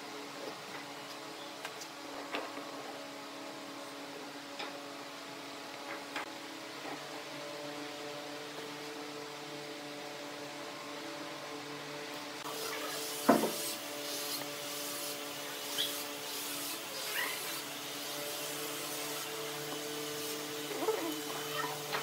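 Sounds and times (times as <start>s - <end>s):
tool scraping spinning wood: 12.4s - 22.0s
wood lathe motor hum: 12.4s - 22.0s.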